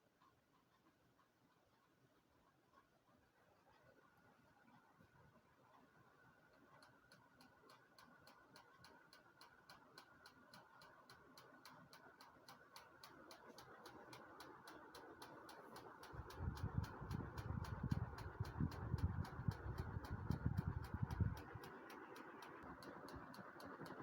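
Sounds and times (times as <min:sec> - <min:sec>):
regular ticking: 0:06.8 - 0:24.0
ceiling fan humming: 0:12.7 - 0:24.0.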